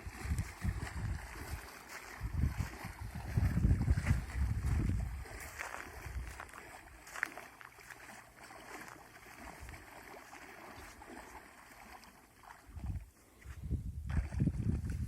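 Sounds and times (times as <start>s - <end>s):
wind buffeting microphone: 0.0s - 7.2s, 12.7s - 15.0s
water washing on shore: 0.0s - 13.2s.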